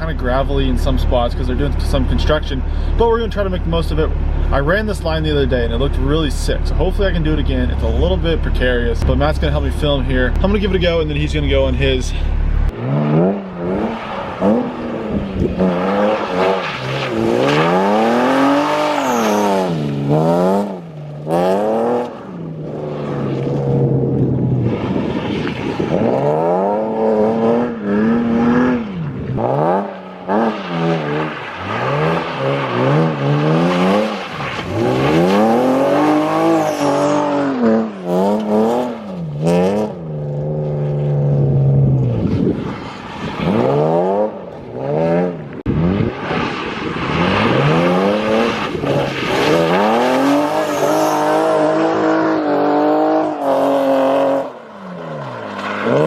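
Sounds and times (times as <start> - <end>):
car engine revving hard: 12.6 - 42.6, 43.4 - 54.6.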